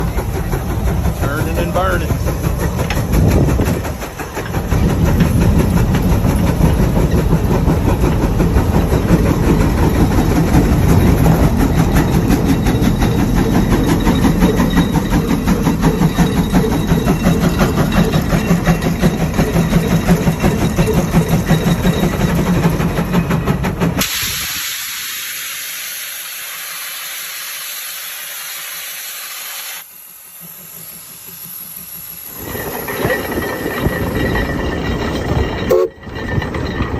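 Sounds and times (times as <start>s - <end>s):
steam engine exhaust beat: 0.0s - 29.1s
escaping steam hiss: 23.9s - 32.5s.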